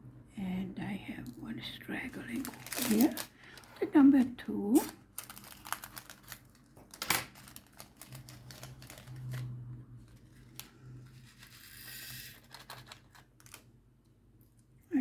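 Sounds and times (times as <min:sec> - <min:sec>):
plastic containers clicking and rustling: 0:02.1 - 0:10.6.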